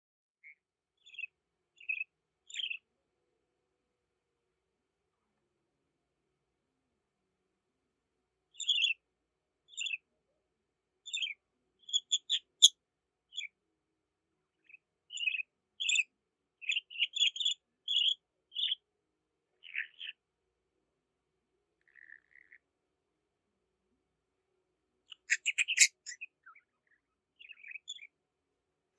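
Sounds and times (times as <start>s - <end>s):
budgerigars chirping: 8.6s - 9.0s, 11.1s - 12.7s, 15.2s - 16.0s, 16.6s - 18.8s, 25.1s - 26.6s.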